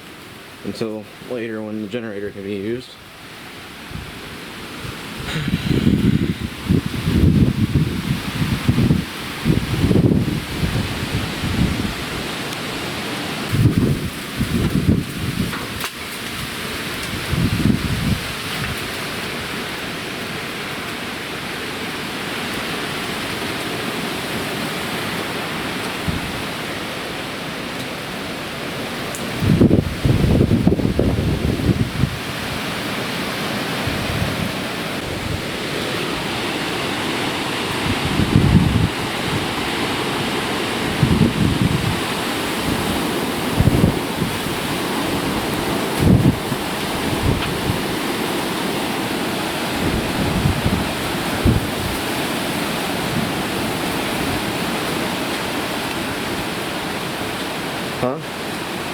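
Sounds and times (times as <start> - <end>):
heavy rain and wind: 0.0 - 58.9
wind buffeting microphone: 3.9 - 12.4, 13.5 - 19.0, 29.2 - 32.7, 33.7 - 55.0.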